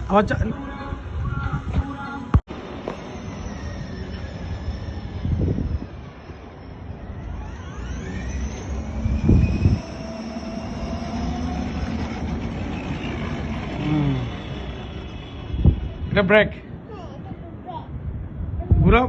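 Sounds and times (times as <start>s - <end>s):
toy motorbike electric motor whining: 2.8s - 16.1s.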